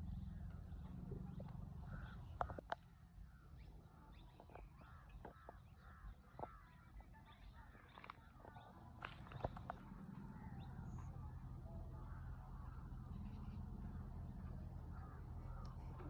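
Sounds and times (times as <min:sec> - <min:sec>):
low steady rumble: 0:00.0 - 0:05.0, 0:08.7 - 0:16.0
birds chirping faintly: 0:00.0 - 0:16.0.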